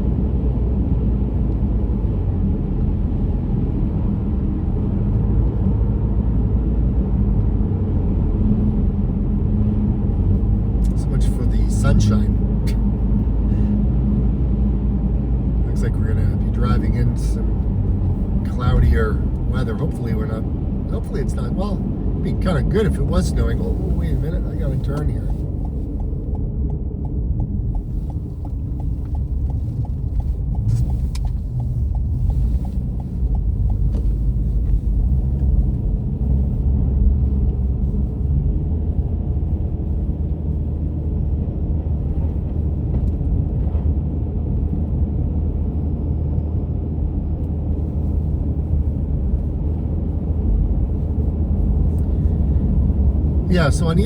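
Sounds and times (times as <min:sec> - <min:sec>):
car interior rumble: 0:00.0 - 0:54.0
turn signal ticking: 0:15.6 - 0:43.7.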